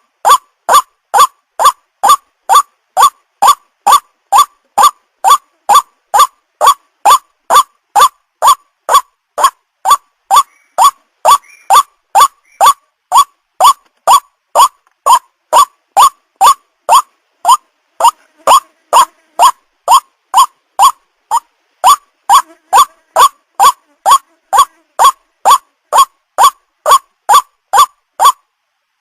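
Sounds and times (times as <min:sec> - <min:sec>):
waterhen calling: 0:00.0 - 0:28.4.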